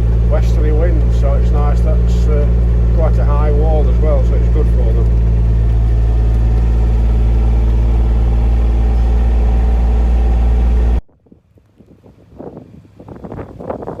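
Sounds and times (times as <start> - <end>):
vehicle engine running: 0.0 - 11.1
wind gusting on microphone: 5.2 - 14.0.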